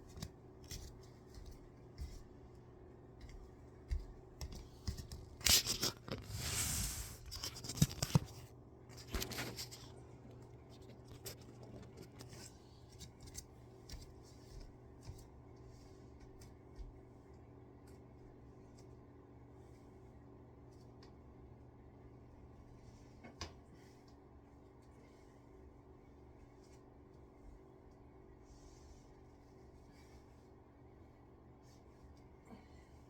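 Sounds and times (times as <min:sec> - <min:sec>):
clothes rustling and scraping: 0:03.2 - 0:10.0.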